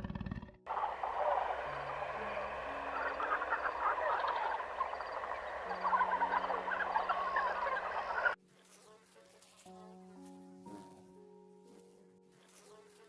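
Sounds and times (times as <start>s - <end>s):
sustained low music notes: 0.7s - 8.2s
chorus of animal calls: 0.7s - 8.4s.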